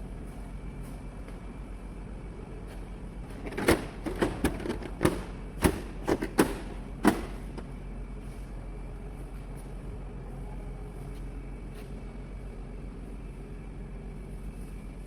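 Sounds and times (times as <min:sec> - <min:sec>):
steady low hum: 0:00.0 - 0:15.0
sharp knocks and clicks: 0:03.3 - 0:07.7.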